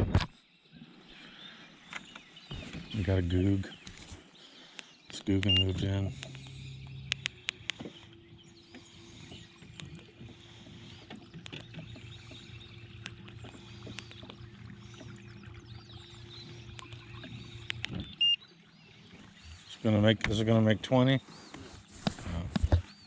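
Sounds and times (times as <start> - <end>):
faint bird chirps: 0.5 - 20.0
steady low hum: 2.6 - 22.8
sharp clicks and knocks: 5.1 - 8.1.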